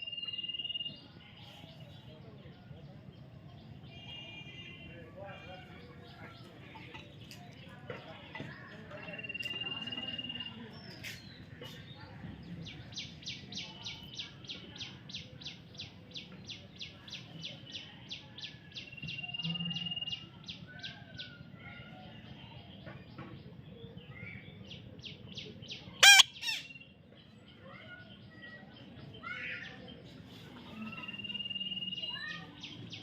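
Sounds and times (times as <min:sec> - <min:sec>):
baby parrot chirping: 0:26.0 - 0:26.7
parrot squawk: 0:26.0 - 0:26.7.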